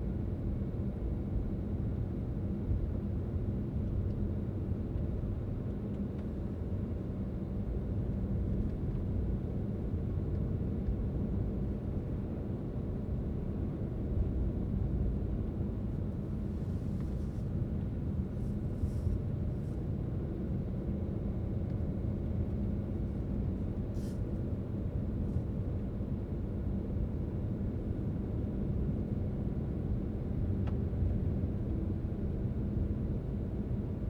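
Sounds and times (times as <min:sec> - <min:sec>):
car tyres and engine rumble: 0:15.1 - 0:20.6.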